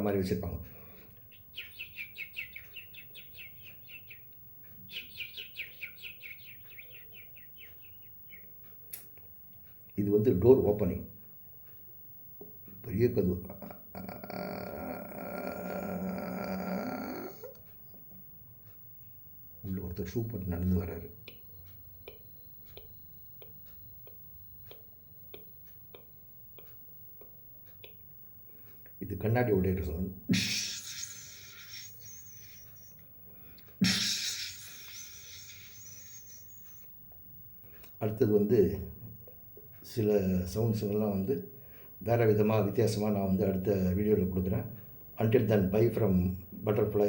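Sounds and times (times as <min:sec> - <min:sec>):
mouth clicks mimicking footsteps: 0:00.3 - 0:41.3
man whistling bird chirps: 0:30.4 - 0:33.0, 0:33.8 - 0:36.9.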